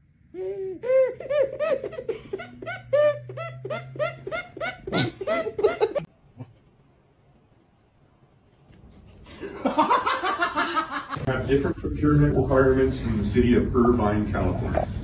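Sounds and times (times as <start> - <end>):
baby laughing: 0.4 - 6.1.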